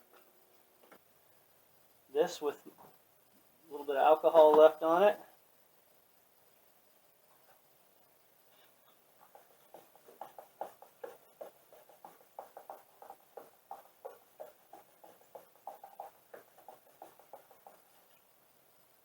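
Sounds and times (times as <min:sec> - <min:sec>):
cloth wiping a surface: 0:09.2 - 0:18.2.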